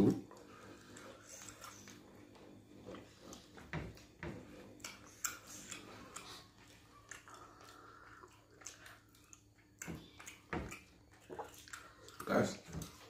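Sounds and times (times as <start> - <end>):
wet chewing: 0.2 - 13.0
lip smacks and mouth clicks: 4.8 - 13.0.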